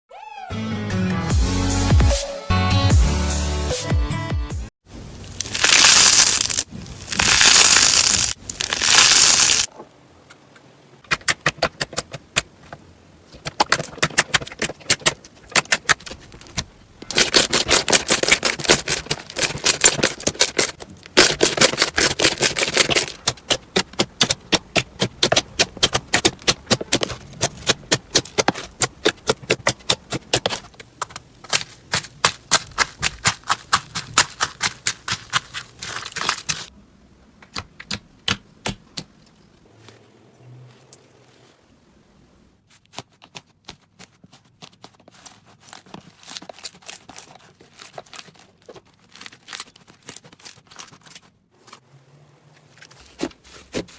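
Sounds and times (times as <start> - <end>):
slime crackling and crunching: 5.1 - 9.7, 17.1 - 30.7, 31.4 - 36.7, 44.8 - 51.3.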